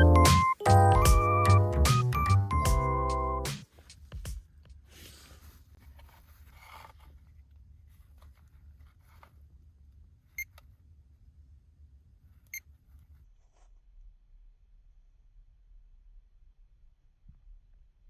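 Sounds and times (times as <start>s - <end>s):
faint low hum: 5.3s - 18.0s.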